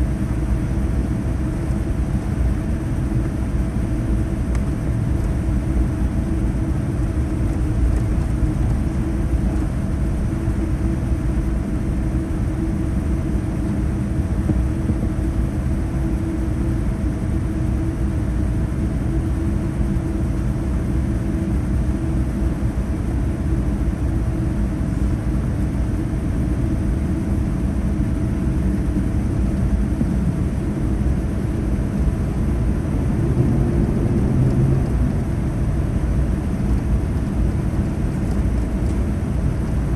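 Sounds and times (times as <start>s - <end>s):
aircraft cabin rumble: 0.0s - 39.9s.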